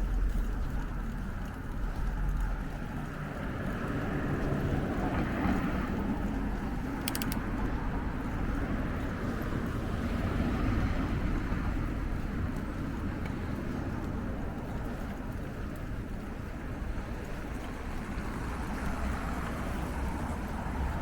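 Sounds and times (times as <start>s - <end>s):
bicycle tyres rolling: 0.0s - 21.0s
faint ticks: 6.6s - 8.3s.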